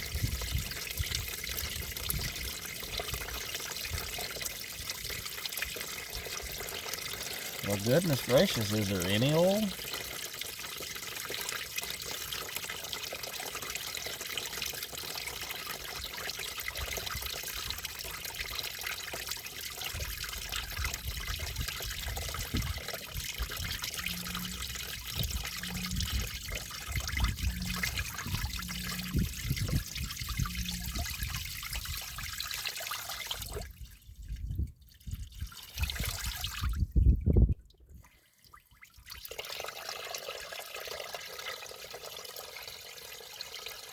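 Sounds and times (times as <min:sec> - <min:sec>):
water stream splashing into pan: 0:00.0 - 0:33.9, 0:35.2 - 0:36.8, 0:38.5 - 0:43.9
wind gusts on microphone: 0:26.9 - 0:31.4, 0:36.6 - 0:37.6.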